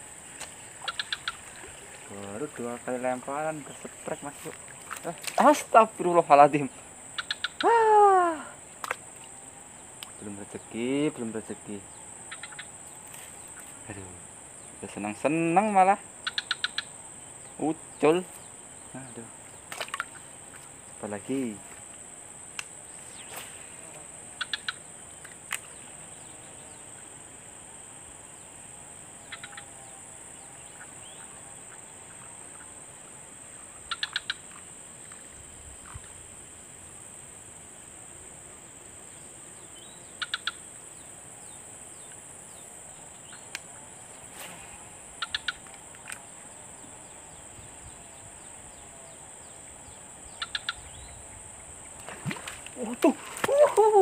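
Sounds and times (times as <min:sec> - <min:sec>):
high-pitched insect drone: 0:00.0 - 0:37.7.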